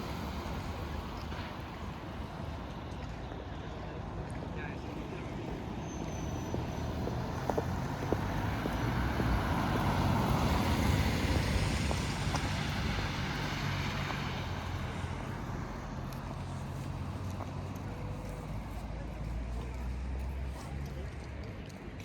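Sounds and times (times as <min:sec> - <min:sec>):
low engine hum: 0:06.4 - 0:22.0.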